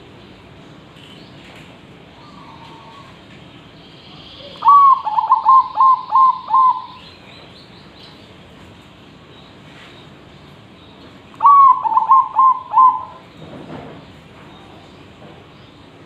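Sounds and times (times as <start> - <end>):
dove cooing: 2.2 - 3.2, 4.4 - 7.0, 11.4 - 13.2.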